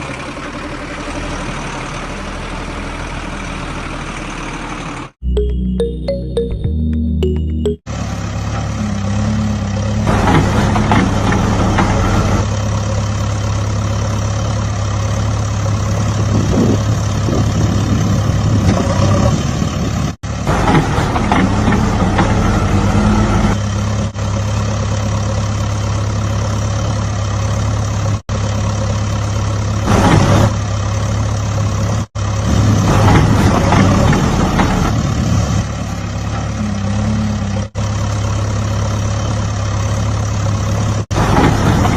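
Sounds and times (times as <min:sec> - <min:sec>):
vehicle engine idling: 0:00.0 - 0:05.9, 0:07.6 - 0:32.6, 0:33.4 - 0:41.9.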